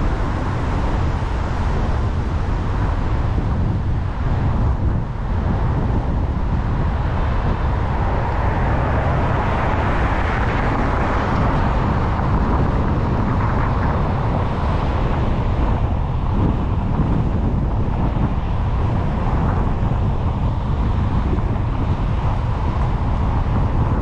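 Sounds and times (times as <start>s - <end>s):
car road noise: 0.0s - 24.0s.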